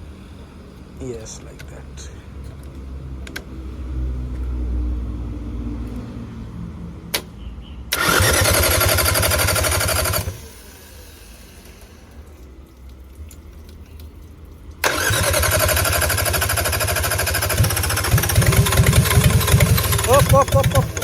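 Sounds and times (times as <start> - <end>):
diesel engine cranking on starter: 7.9 - 12.3, 14.8 - 21.0
low engine rumble: 17.2 - 21.0.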